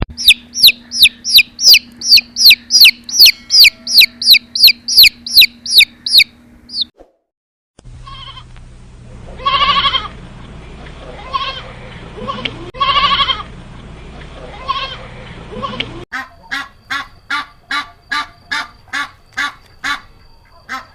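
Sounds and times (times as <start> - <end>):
high falling chirps: 0.1 - 6.9
animal wavering cries: 0.2 - 6.8, 9.4 - 10.1.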